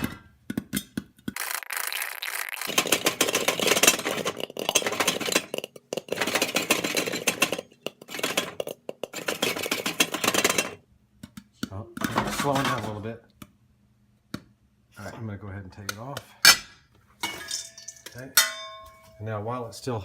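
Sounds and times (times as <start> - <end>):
popcorn popping in a pan: 0.0 - 11.4
pan rattling on stove: 2.6 - 10.8.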